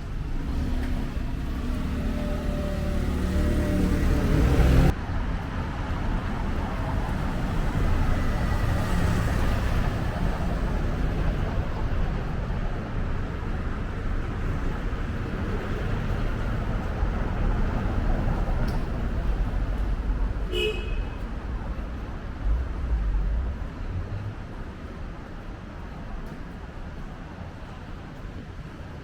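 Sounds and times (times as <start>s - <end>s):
car passing: 0.0s - 12.4s
traffic rumble: 0.0s - 29.0s
vehicle engine running loudly: 0.2s - 4.9s.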